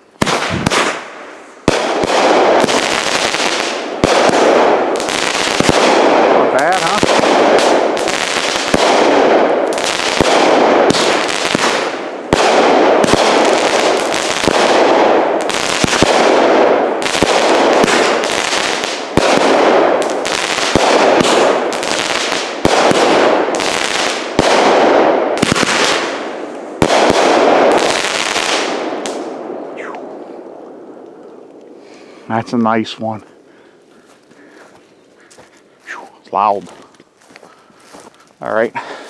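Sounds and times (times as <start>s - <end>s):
firework launch reports: 5.6s - 7.6s.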